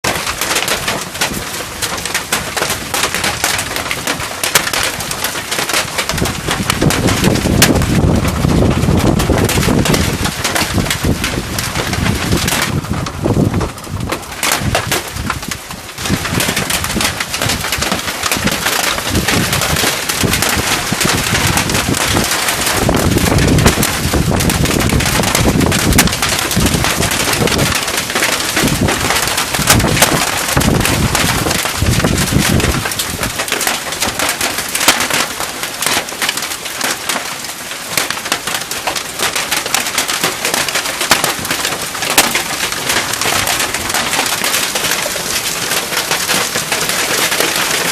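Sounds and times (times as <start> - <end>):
hailstones pelting: 0.0 - 47.9
heavy rain: 0.0 - 47.9.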